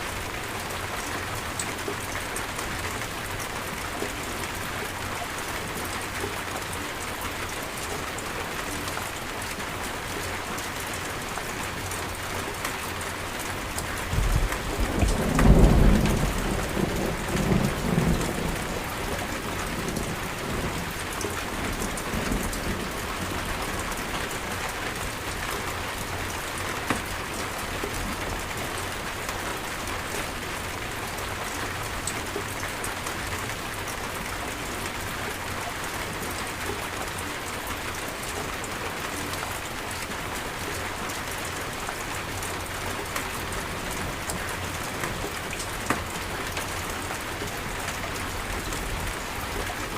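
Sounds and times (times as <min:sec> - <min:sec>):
low roll of thunder: 0:14.1 - 0:21.0.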